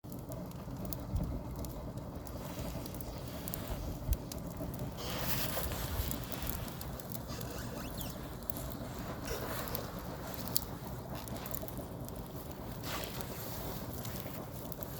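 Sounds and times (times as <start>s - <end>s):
firewood crackling: 0.0s - 14.9s
fire hissing: 1.4s - 14.9s.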